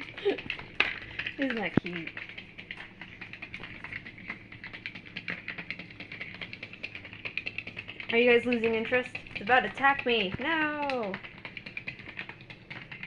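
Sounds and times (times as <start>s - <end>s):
faint steady hum: 0.0s - 13.0s
toy ball clicking and rattling: 0.0s - 13.0s.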